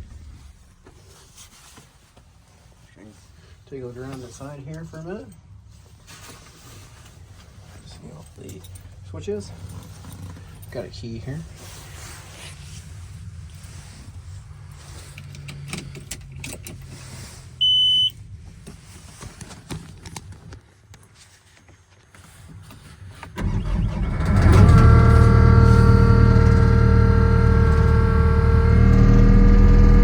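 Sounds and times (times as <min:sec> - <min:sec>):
short warning beep: 0:17.6 - 0:18.2
diesel engine cranking and running: 0:23.4 - 0:30.0.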